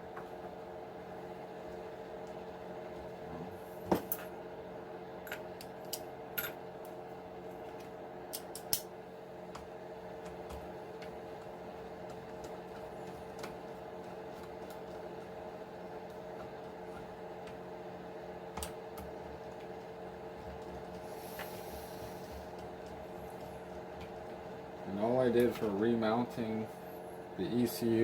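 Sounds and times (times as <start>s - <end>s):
steady hum: 0.0s - 28.0s
small parts clicking and tapping: 7.8s - 8.8s.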